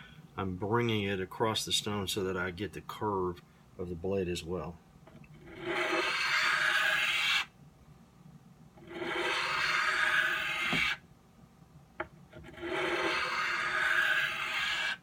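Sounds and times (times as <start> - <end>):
knife scraping on sharpening stone: 8.9 - 10.8, 12.4 - 15.0.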